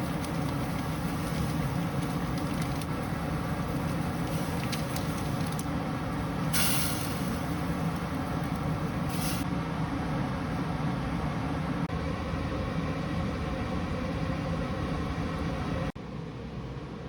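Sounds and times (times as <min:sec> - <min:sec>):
low rumbling noise: 0:00.0 - 0:16.0
brief hiss: 0:06.5 - 0:07.4, 0:09.1 - 0:09.4.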